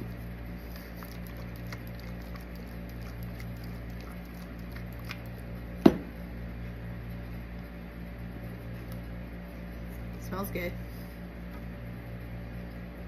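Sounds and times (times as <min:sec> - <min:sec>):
low steady hum: 0:00.0 - 0:13.0
hard object knock: 0:05.8 - 0:06.1.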